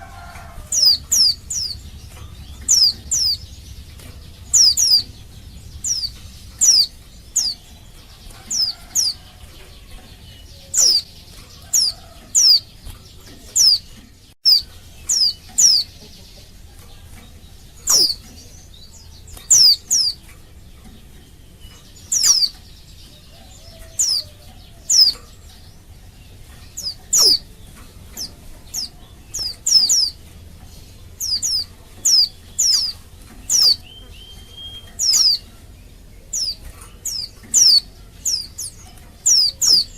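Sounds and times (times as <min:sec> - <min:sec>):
bird calling high-pitched notes: 0:33.6 - 0:35.5.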